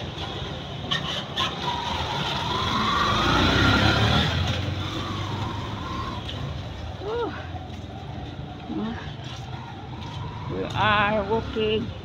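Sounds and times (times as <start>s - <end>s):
vehicle passing close by: 0.0s - 6.6s.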